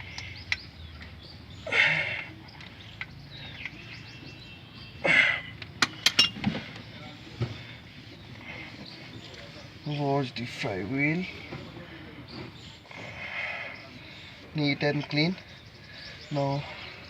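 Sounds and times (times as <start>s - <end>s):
sharp metallic clinks: 5.8s - 6.4s.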